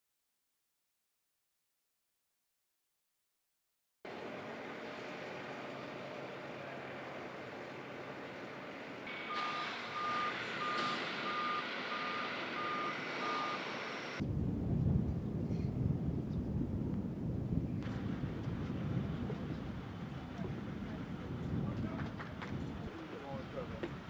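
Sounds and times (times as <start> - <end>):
engine humming: 4.1 - 14.2
reversing alarm beeping: 7.2 - 14.2
wind buffeting microphone: 14.2 - 24.0.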